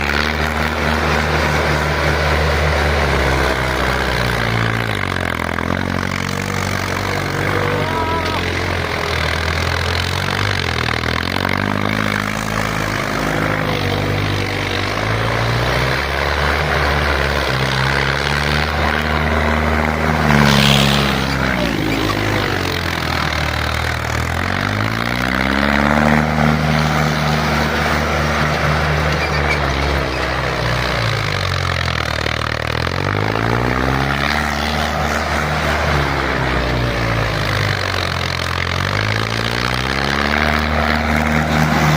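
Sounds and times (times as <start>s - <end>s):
tractor engine revving under load: 0.0s - 41.9s.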